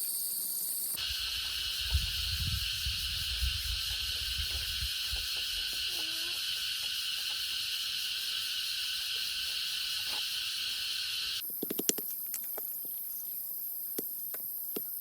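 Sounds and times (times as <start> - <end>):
high-pitched insect drone: 0.0 - 11.4.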